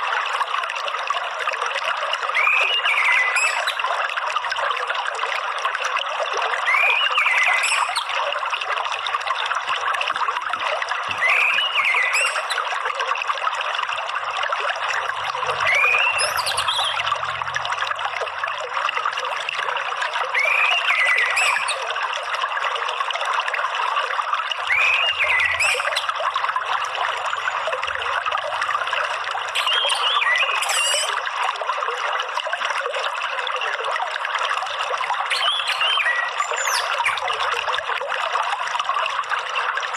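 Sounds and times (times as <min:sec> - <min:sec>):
water trickling: 0:00.0 - 0:39.9
rising bird chirps: 0:15.5 - 0:17.2.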